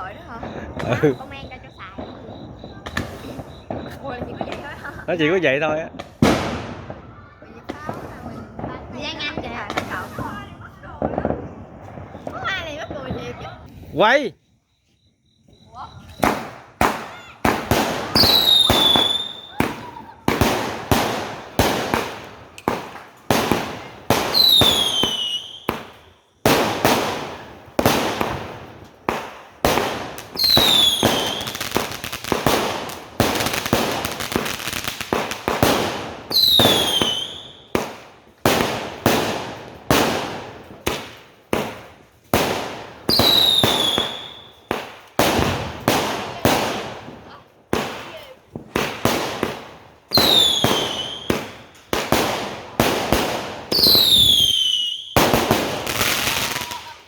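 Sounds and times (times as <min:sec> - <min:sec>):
falling firework whistle: 0:00.0 - 0:05.3, 0:12.0 - 0:13.6, 0:15.4 - 0:22.3, 0:24.2 - 0:27.5, 0:29.7 - 0:32.5, 0:33.2 - 0:37.7, 0:43.0 - 0:44.6, 0:53.7 - 0:57.0
dense firework crackling: 0:00.0 - 0:14.3, 0:15.6 - 0:57.0
fireworks launching with sharp pops: 0:00.0 - 0:57.0.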